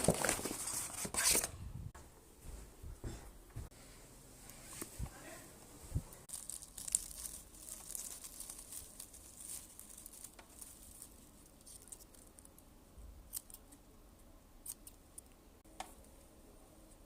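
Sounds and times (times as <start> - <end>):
soft crinkling and rustling: 4.4 - 12.6.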